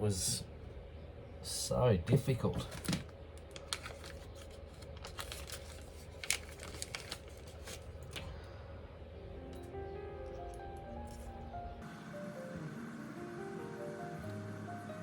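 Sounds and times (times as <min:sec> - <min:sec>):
music: 0:09.0 - 0:15.0.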